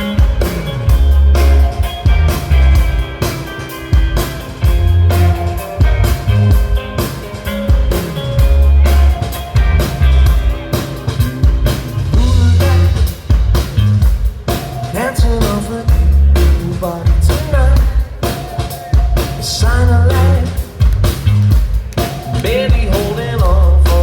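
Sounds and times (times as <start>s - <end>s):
rock band playing live: 0.0s - 24.0s
lead vocal singing: 12.1s - 13.4s, 14.8s - 20.8s, 22.1s - 24.0s.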